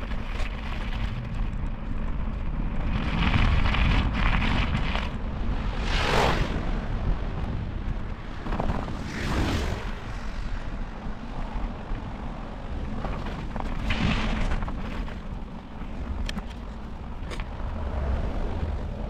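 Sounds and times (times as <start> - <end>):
wind rumbling on microphone: 0.0 - 19.0
vehicles swishing past: 5.4 - 11.0.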